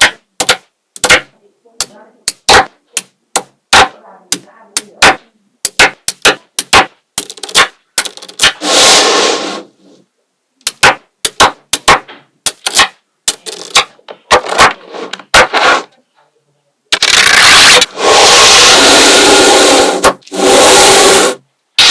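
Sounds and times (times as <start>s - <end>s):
magnetic balls clicking together: 5.6s - 8.6s.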